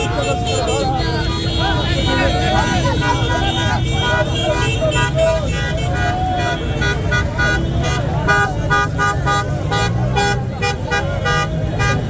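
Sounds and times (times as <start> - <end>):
people shouting: 0.0 - 9.2
car horns honking: 0.0 - 12.0
traffic rumble: 0.0 - 12.0.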